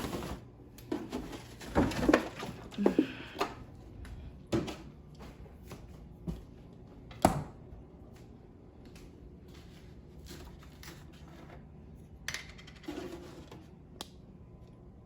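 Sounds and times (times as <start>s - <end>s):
cupboards and containers clattering: 0.0s - 3.6s.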